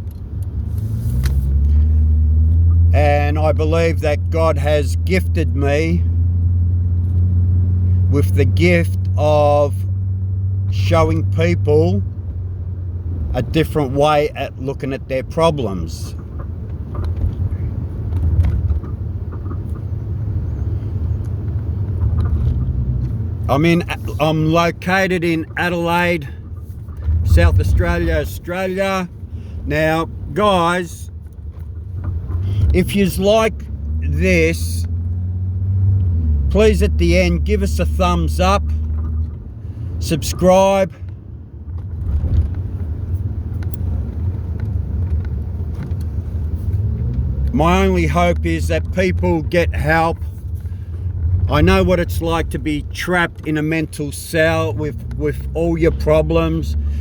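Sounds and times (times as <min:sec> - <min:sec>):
low rumble: 0:16.1 - 0:36.6.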